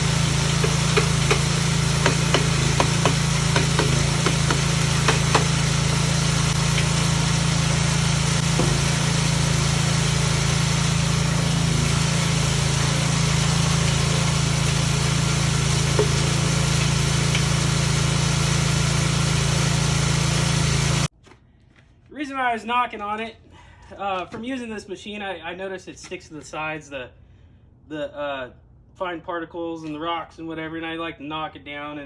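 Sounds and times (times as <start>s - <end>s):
ore crusher humming: 0.0s - 21.1s
hammer knocking on metal housing: 0.6s - 5.7s, 8.6s - 9.0s.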